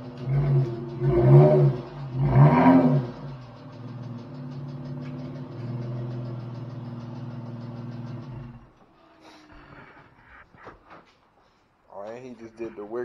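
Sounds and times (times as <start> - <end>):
car engine idling: 0.0 - 9.4
faint fast ticking: 3.0 - 8.8.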